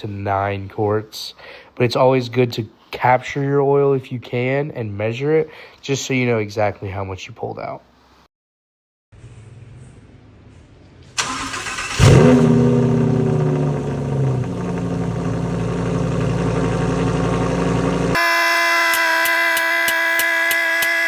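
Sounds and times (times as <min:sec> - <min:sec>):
engine cranking and starting: 0:11.2 - 0:18.2
engine high idle: 0:11.2 - 0:18.2
engine revving: 0:11.2 - 0:18.2.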